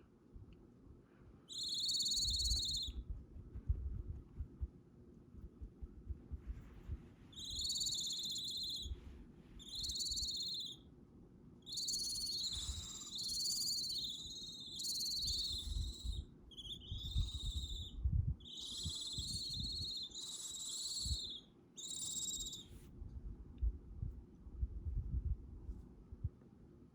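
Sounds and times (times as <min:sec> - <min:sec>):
owl chicks hissing: 0:01.5 - 0:02.9, 0:07.3 - 0:10.8, 0:11.7 - 0:17.8, 0:18.4 - 0:22.8.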